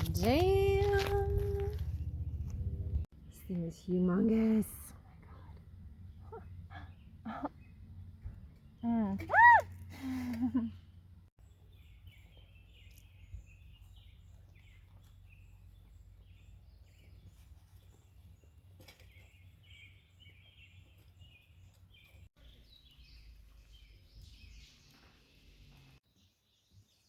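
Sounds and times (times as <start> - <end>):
low steady rumble: 0.0 - 8.7
faint birds chirping: 0.0 - 27.0.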